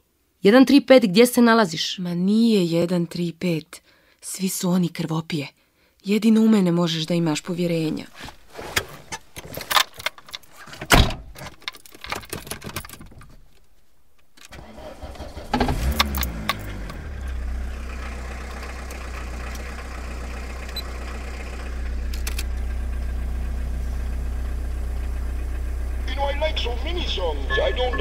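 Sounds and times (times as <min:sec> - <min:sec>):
car engine starting and idling: 0:14.4 - 0:28.0.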